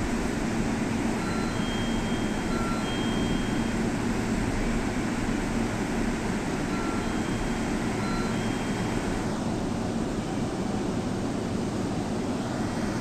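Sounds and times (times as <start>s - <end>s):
electric train equipment humming: 0.0s - 12.9s.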